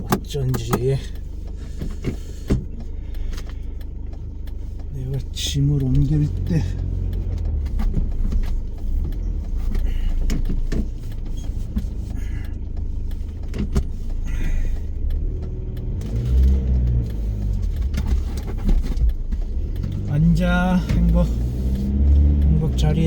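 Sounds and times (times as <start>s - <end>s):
car engine and road rumble: 0.0s - 23.0s
light clicks and knocks: 0.0s - 23.0s.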